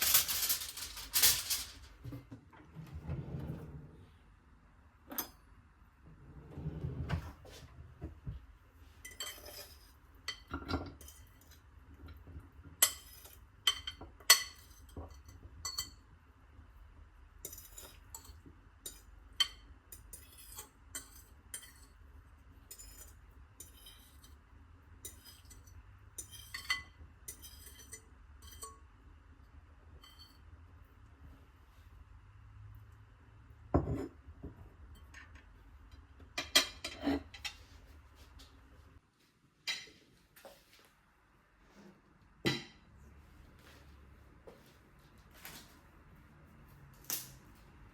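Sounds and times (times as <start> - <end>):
dishes and glass clinking: 9.0 - 12.2, 12.8 - 16.0, 33.7 - 34.2, 34.9 - 37.6, 42.4 - 42.8.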